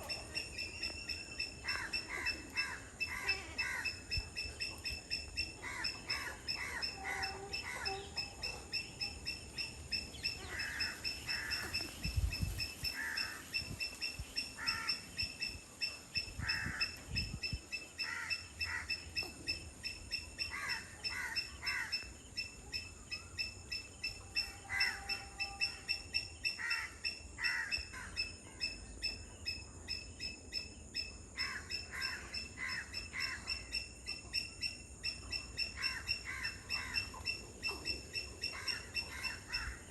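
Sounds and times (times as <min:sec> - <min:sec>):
wetland birds calling: 0:00.0 - 0:22.1, 0:31.4 - 0:39.9.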